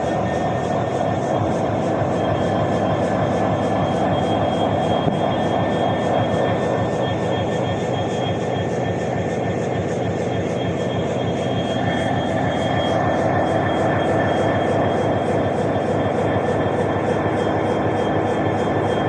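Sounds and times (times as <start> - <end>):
diesel locomotive engine under load: 0.0 - 19.0
high steady whine: 0.0 - 19.0.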